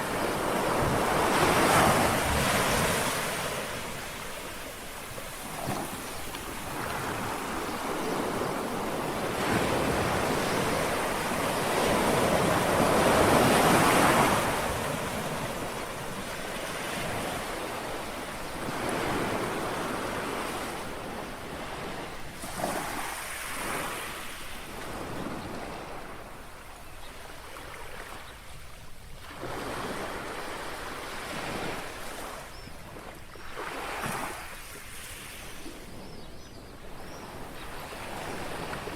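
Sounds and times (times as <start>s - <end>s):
sea waves washing onto shore: 0.0s - 25.3s.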